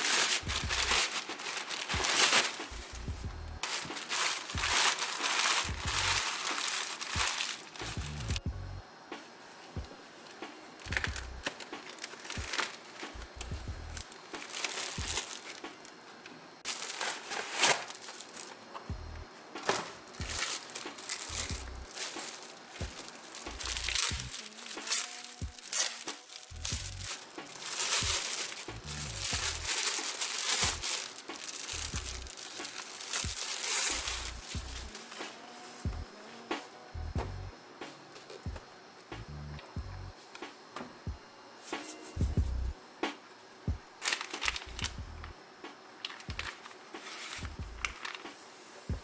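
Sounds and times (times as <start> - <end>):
packaging crinkling: 0.0 - 8.4, 10.3 - 18.9, 19.6 - 36.4, 44.0 - 45.3, 46.0 - 48.5.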